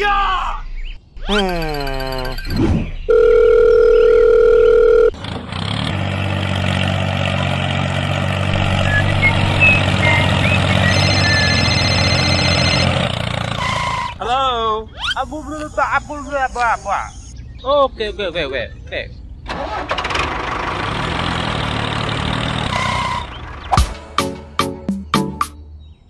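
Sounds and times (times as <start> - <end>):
steady telephone tone: 3.1 - 5.2
tractor engine running: 3.1 - 14.2, 19.5 - 24.2.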